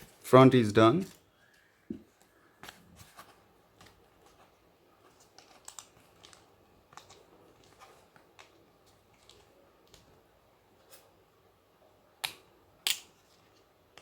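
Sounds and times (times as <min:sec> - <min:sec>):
plastic parts clicking and rustling: 0:05.0 - 0:10.2.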